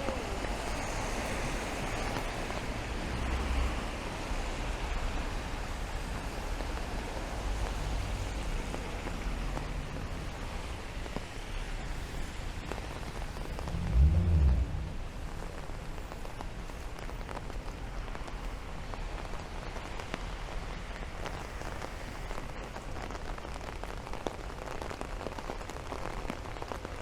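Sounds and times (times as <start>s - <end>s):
low traffic rumble: 0.0s - 21.5s
rain falling on street: 0.0s - 27.0s
raindrop ticks: 4.7s - 27.0s.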